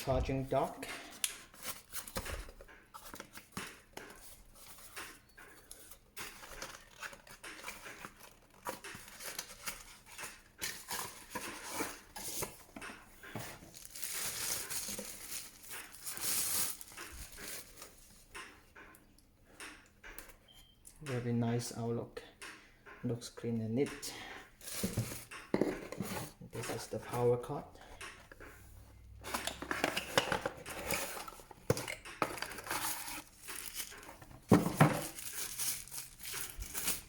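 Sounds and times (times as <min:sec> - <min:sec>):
plastic packaging crinkling: 0:13.6 - 0:18.0, 0:32.3 - 0:37.0.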